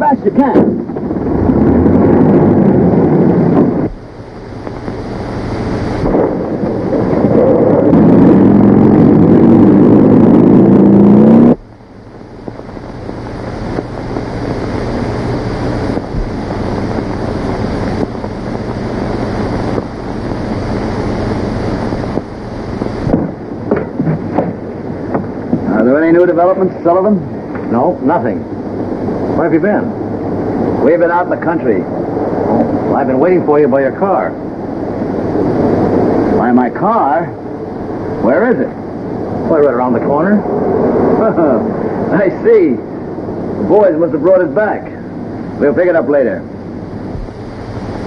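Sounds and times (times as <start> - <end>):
steady rushing noise: 0.0 - 48.0
car engine accelerating: 0.9 - 4.1, 6.0 - 11.7.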